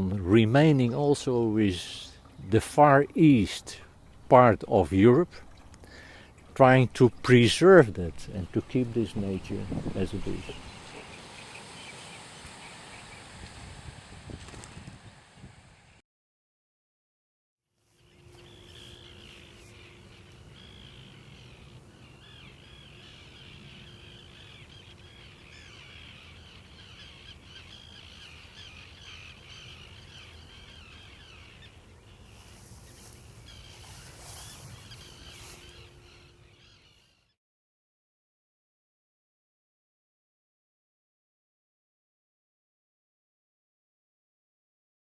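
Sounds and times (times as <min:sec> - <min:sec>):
flock of birds chattering: 0:08.2 - 0:12.1, 0:18.1 - 0:37.1.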